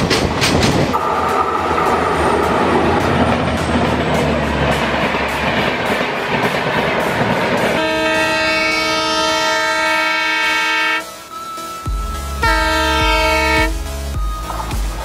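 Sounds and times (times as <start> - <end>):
train passing with wheel clatter: 0.0 - 15.0
multi-tone locomotive horn blast: 7.7 - 11.2, 12.3 - 13.9.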